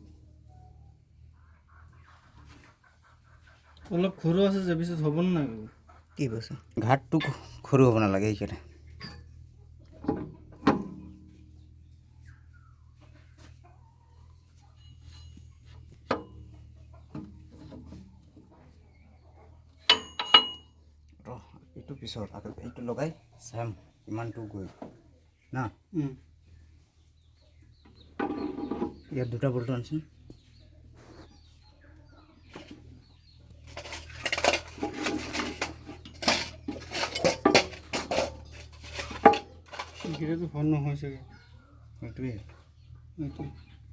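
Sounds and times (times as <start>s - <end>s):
metal tools knocking and clunking: 8.9s - 11.4s, 14.8s - 18.1s, 19.8s - 20.8s, 33.6s - 40.4s
metal bolts clinking and rattling: 19.9s - 20.8s, 33.7s - 40.2s
ringing metallic clinks: 19.9s - 20.8s.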